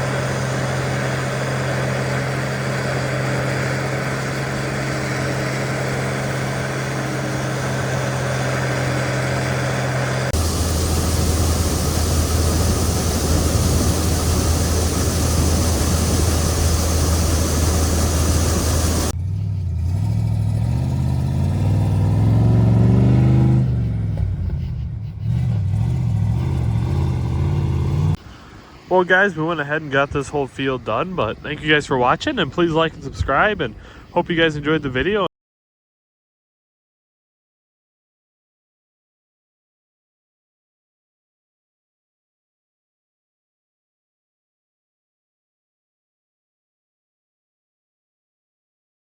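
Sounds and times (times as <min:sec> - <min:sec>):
farm machinery engines running: 0:00.0 - 0:19.8, 0:23.7 - 0:35.3.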